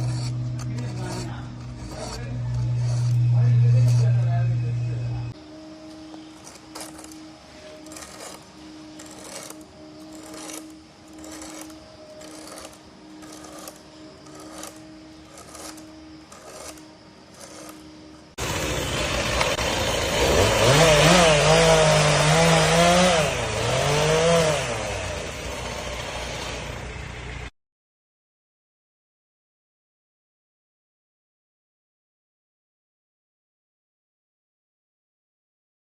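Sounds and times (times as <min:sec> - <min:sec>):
file scraping chainsaw teeth: 0:00.0 - 0:04.3, 0:06.4 - 0:18.3
chainsaw engine revving: 0:07.8 - 0:17.8, 0:18.4 - 0:27.4.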